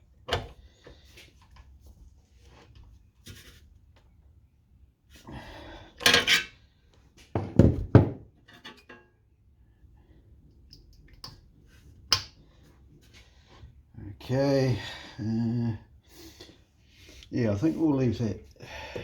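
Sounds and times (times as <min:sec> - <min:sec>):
metal parts and tools clattering: 0:06.0 - 0:06.6, 0:08.4 - 0:09.1.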